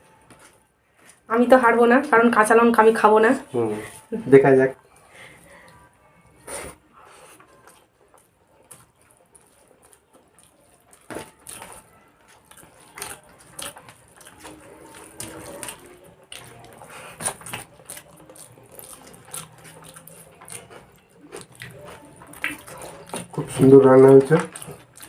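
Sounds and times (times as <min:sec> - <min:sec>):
wet squishy food handling: 0:07.3 - 0:25.0.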